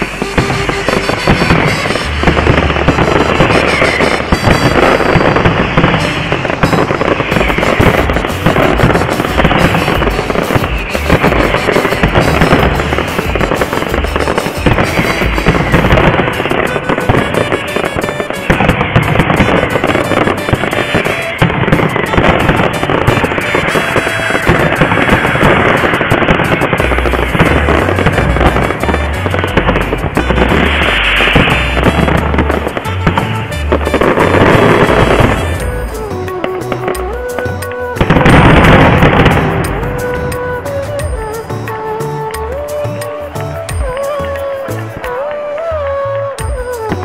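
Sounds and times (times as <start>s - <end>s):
fireworks barrage: 0.0s - 47.0s.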